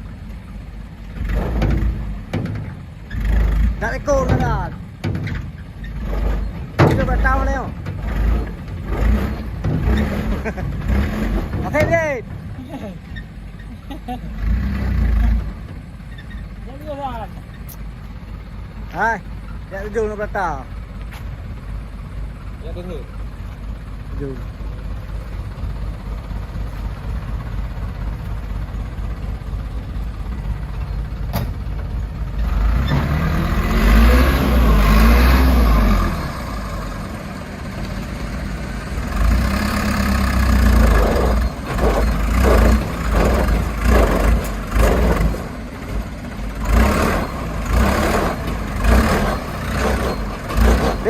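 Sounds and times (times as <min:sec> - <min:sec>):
diesel engine revving: 0:00.0 - 0:51.0.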